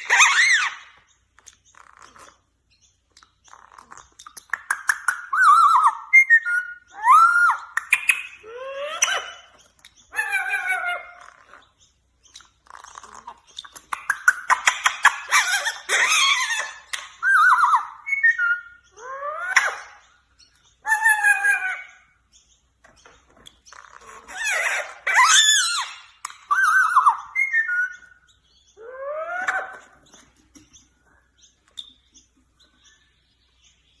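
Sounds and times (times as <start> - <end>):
parrot squawks: 0.0 - 1.0, 5.1 - 11.7, 14.1 - 20.0, 20.8 - 22.2, 23.7 - 28.2, 28.8 - 30.0
parrot warbling call: 0.0 - 1.0, 5.2 - 11.6, 14.4 - 20.0, 20.8 - 22.2, 24.0 - 28.1, 28.8 - 30.0.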